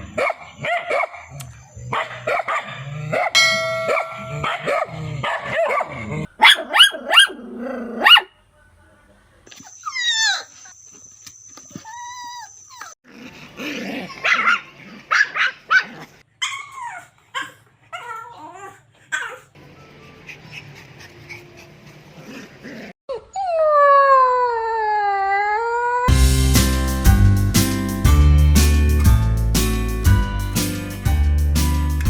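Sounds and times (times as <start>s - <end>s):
animal whines and yelps: 9.6s - 10.7s, 11.7s - 13.0s, 16.4s - 20.8s, 23.1s - 26.1s.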